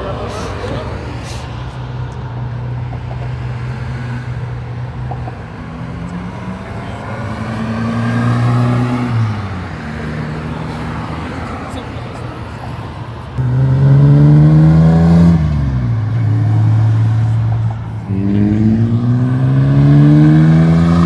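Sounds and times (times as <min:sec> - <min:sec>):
car engines running: 0:00.0 - 0:21.0
car engine revving: 0:03.0 - 0:10.7, 0:13.4 - 0:21.0.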